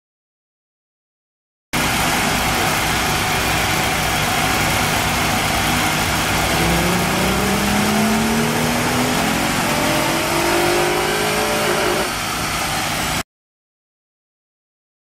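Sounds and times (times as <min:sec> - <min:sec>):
car engine revving on dynamometer: 0:05.0 - 0:13.2.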